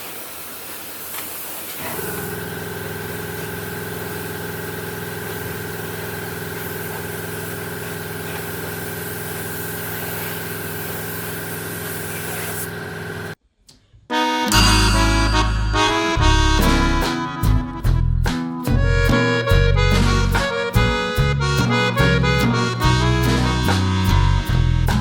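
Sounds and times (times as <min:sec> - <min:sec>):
power tool motor humming: 0:01.8 - 0:13.4.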